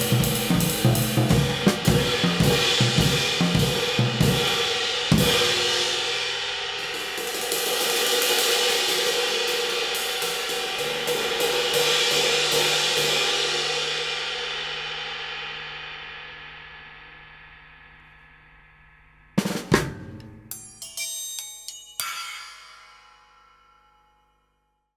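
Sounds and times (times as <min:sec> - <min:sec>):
loud sharp cymbal hits: 0:00.0 - 0:15.9, 0:19.4 - 0:20.8.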